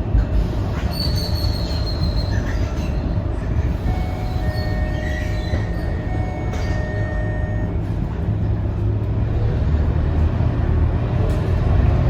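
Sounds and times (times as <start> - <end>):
bus engine low rumble: 0.0 - 12.0
high brake squeal: 3.9 - 7.8.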